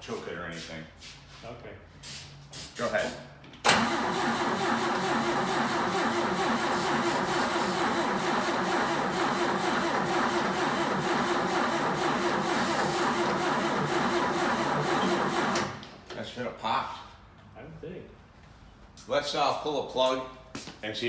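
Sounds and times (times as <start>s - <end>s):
engine cranking on starter: 3.6s - 15.9s.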